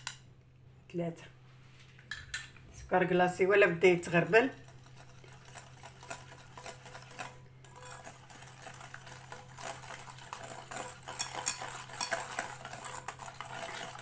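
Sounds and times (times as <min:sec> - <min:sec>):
spoon scraping a mixing bowl: 0:03.7 - 0:14.0.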